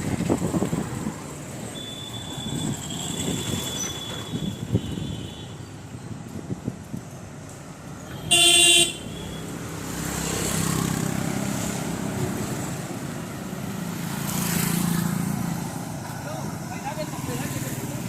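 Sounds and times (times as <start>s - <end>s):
passing road traffic: 0.0s - 18.0s
vehicle horn honk: 8.2s - 9.4s.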